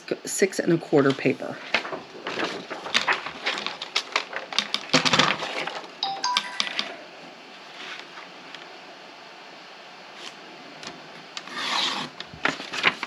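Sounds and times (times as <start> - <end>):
paper rustling and tapping: 1.1 - 5.9, 12.2 - 13.0
high chirpy notes: 6.0 - 6.9.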